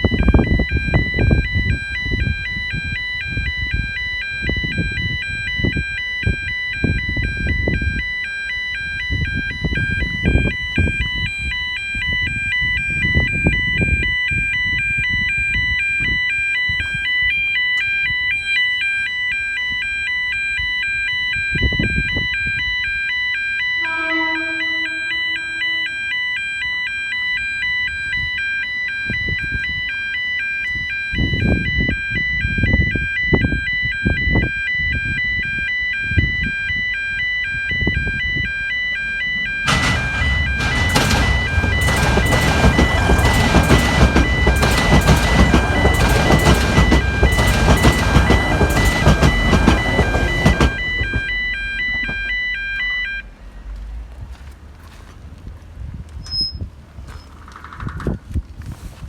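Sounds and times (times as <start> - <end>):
level-crossing alarm warbling: 23.6 - 27.9, 36.2 - 53.3
low rumbling buffets: 37.9 - 56.1.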